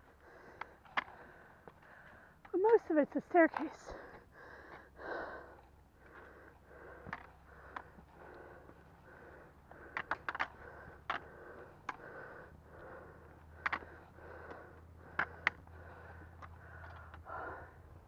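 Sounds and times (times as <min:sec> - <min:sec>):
heavy breathing: 0:00.0 - 0:02.9, 0:03.7 - 0:18.0
trekking poles clicking on stone: 0:00.3 - 0:17.5.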